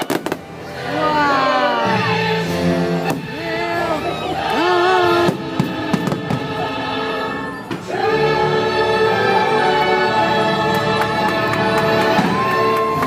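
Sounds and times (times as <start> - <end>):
firework bangs: 0.0 - 0.6, 5.3 - 6.6
orchestral music with choir: 0.0 - 13.0.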